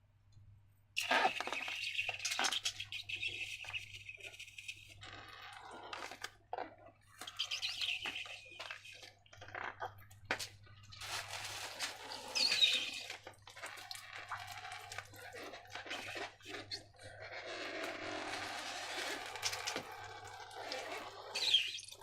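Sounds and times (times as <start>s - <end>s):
balloon squeak: 1.0s - 6.2s, 7.2s - 9.1s, 11.1s - 13.2s, 15.8s - 21.9s.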